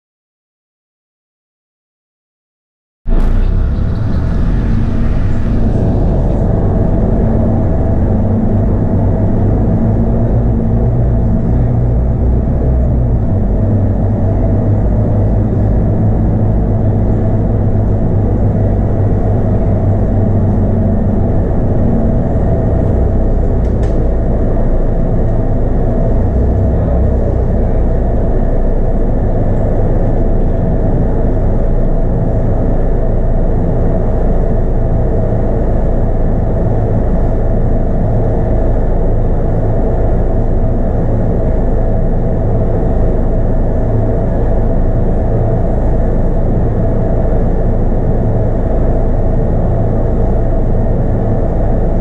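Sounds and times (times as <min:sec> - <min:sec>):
bus diesel engine drone: 0:03.1 - 0:52.0.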